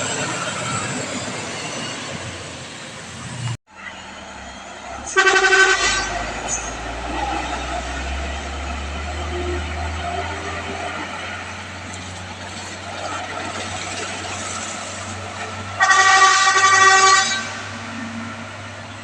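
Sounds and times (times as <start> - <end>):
vehicle engine: 0.0 - 19.0
vehicle horn: 5.1 - 7.2, 15.8 - 17.9.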